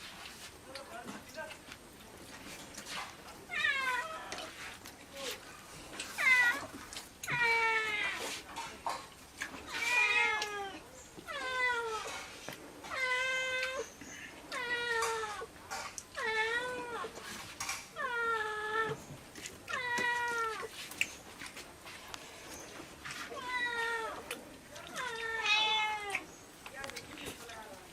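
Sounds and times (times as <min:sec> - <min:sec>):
cat meowing: 0:24.8 - 0:26.3.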